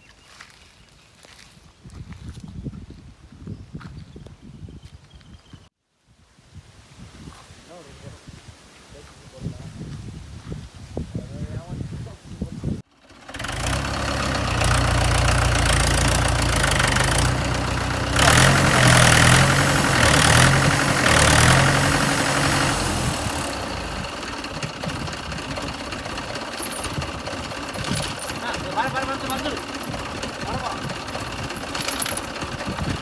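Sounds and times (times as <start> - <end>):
tractor diesel engine running: 12.9 - 33.0.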